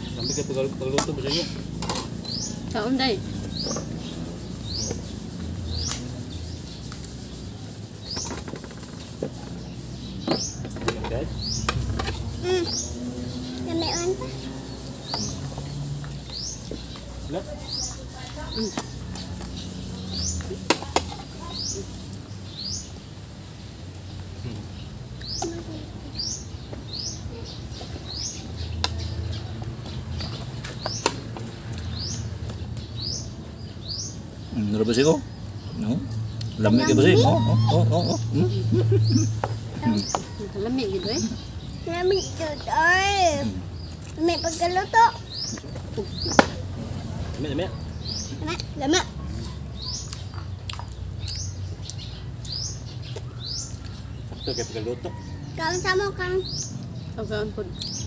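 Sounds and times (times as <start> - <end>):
bird chirping: 0.0 - 58.0
faint clicks of people eating: 6.8 - 7.3, 27.7 - 33.1, 43.8 - 44.2, 49.4 - 54.5
bird rising chirp: 31.9 - 46.9.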